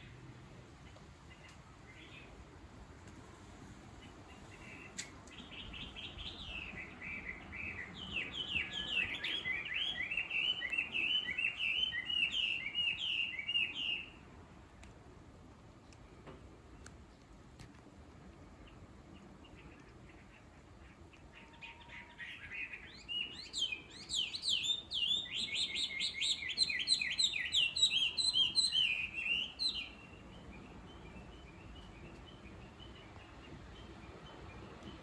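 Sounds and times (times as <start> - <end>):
songbird singing sweeping notes: 4.8 - 14.2, 21.7 - 35.0.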